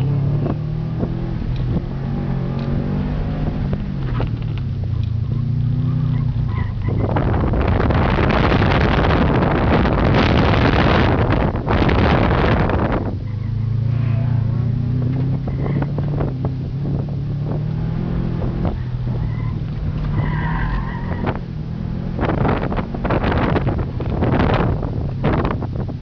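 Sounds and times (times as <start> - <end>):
car engine under load: 0.0 - 26.0
wind on microphone: 6.3 - 26.0
tyre squeals: 18.8 - 21.4.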